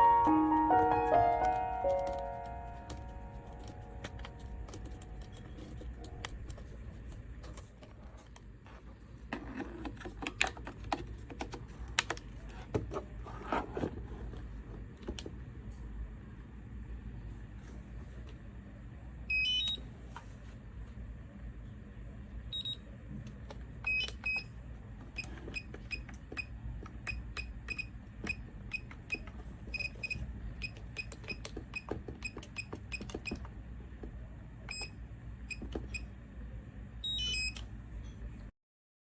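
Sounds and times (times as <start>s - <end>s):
low steady hum: 0.0s - 31.1s.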